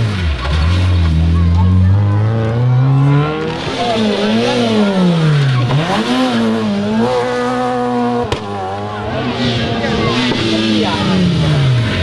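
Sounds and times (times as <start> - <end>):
rally car engine revving: 0.0 - 12.0
sharp crack: 8.2 - 8.8.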